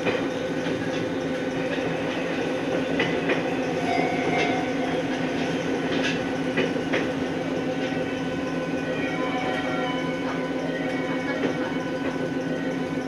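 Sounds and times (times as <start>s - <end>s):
wheels clicking over rail joints: 0.0s - 8.6s
electric train running hum: 0.0s - 13.0s.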